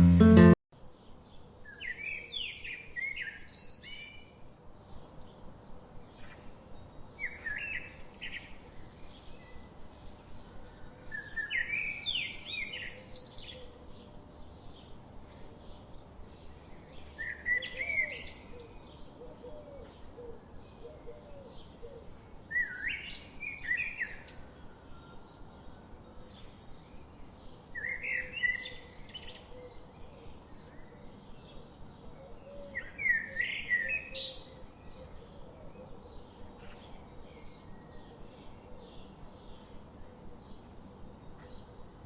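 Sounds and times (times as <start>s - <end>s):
songbird singing loud phrase: 32.3s - 40.7s.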